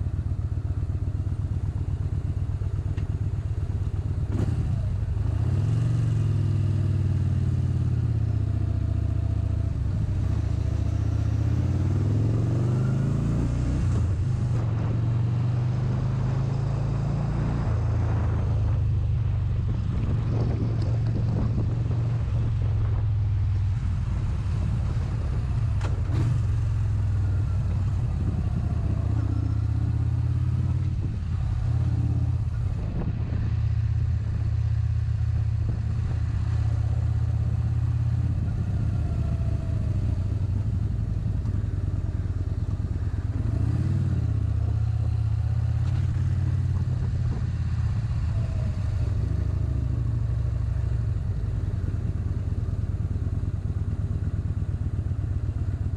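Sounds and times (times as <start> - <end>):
motorcycle engine rumbling: 0.0 - 55.9.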